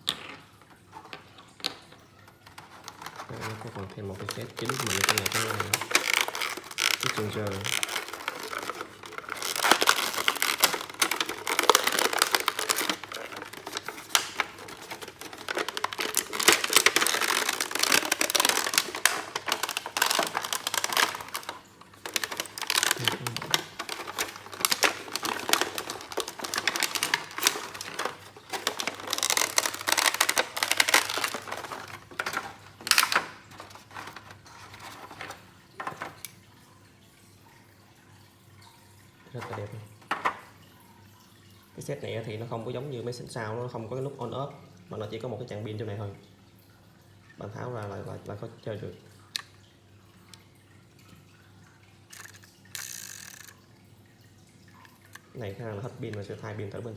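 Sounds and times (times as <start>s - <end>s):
plastic packaging crinkling: 0.0s - 36.4s, 39.3s - 40.7s, 52.1s - 53.6s.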